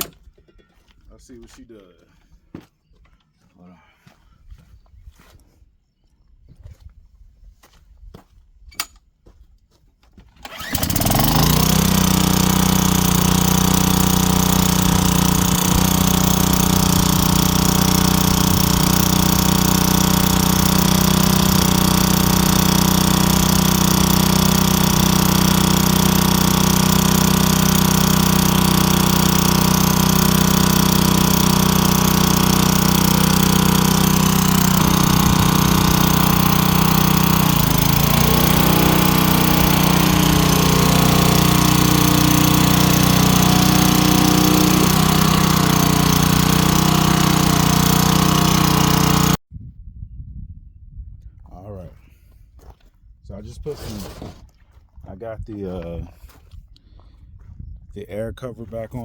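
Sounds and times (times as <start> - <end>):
string trimmer engine running: 10.4 - 49.4.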